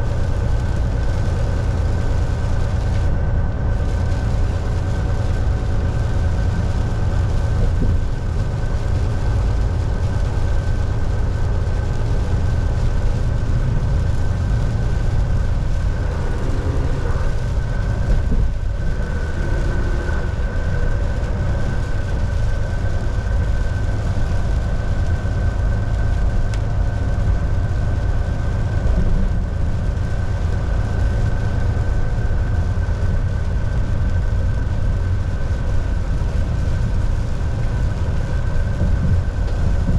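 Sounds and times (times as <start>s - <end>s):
road noise: 0.0s - 39.9s
truck engine drone: 0.0s - 39.9s
thin steady whine: 9.8s - 26.9s.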